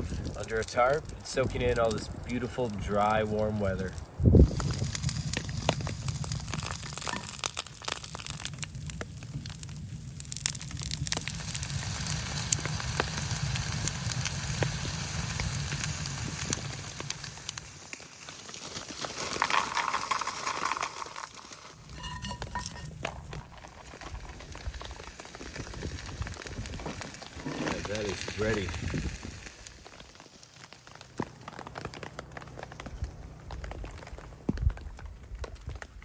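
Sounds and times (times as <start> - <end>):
wood stove fire crackling: 0.0 - 36.0
sleet pattering on tarp: 17.7 - 21.6
hissing: 23.2 - 31.0.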